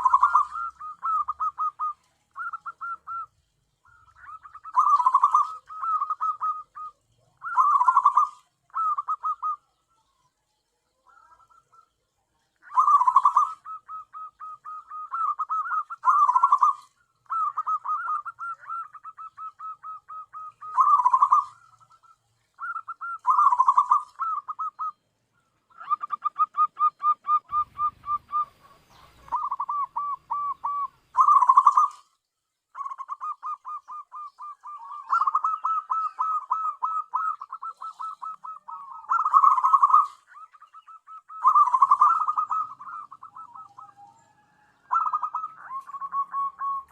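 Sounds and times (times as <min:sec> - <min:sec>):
dove cooing: 0:00.0 - 0:10.2, 0:10.9 - 0:46.9.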